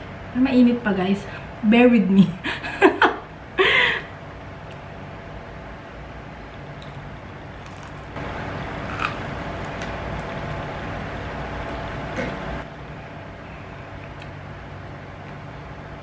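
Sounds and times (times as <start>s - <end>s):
steady low hum: 0.0s - 16.0s
person chewing crispy food: 7.6s - 8.2s, 8.8s - 9.9s.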